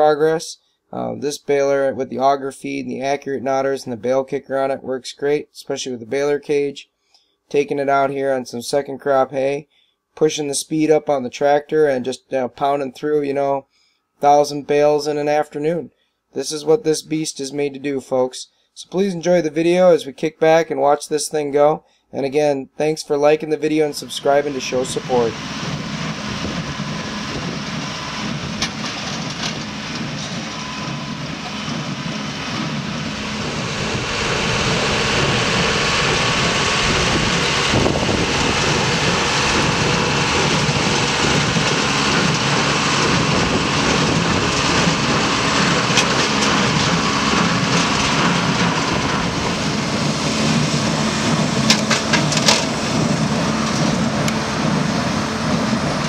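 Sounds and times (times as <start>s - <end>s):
tractor diesel engine under load: 23.2s - 56.0s
baler machinery clacks: 24.1s - 56.0s.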